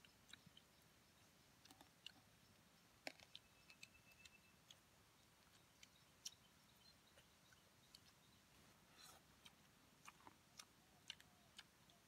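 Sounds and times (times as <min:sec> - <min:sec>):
chewing and picking meat off bones: 0:09.0 - 0:12.0.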